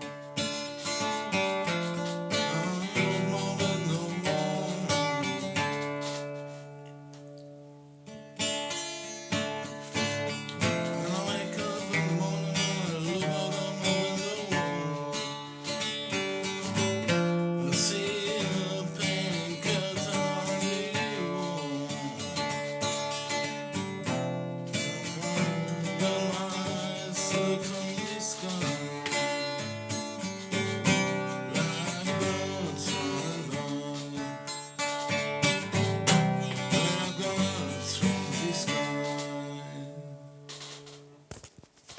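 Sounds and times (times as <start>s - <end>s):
acoustic guitar music: 0.0s - 41.9s
person singing: 0.8s - 6.3s, 10.4s - 40.4s.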